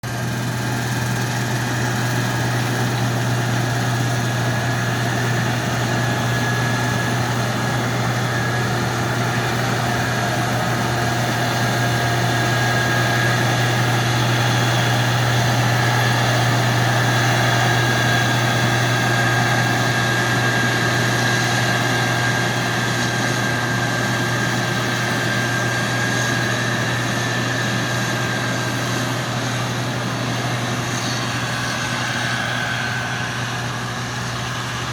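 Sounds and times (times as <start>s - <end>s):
combine harvester running: 0.0s - 34.9s.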